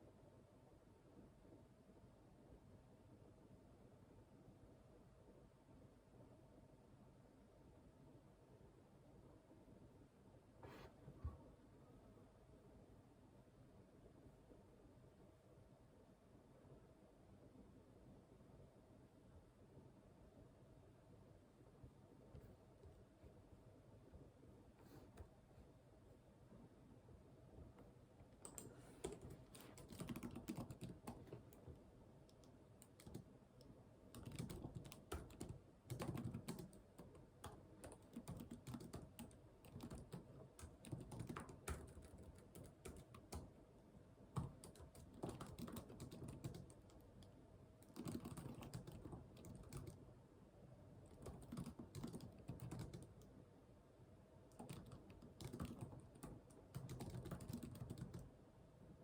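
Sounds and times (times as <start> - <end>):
typing on keyboard: 28.4 - 31.6, 32.3 - 33.3, 34.1 - 43.5, 44.3 - 50.0, 51.1 - 53.3, 54.5 - 58.3.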